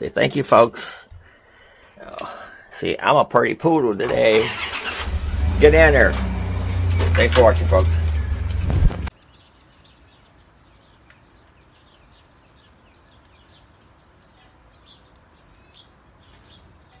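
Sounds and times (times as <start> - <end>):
small birds chirping: 5.3 - 17.0.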